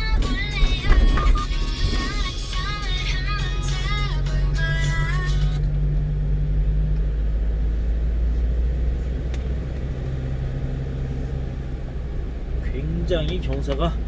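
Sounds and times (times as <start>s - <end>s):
music: 0.0s - 5.7s
truck engine pulling under load: 0.0s - 14.0s.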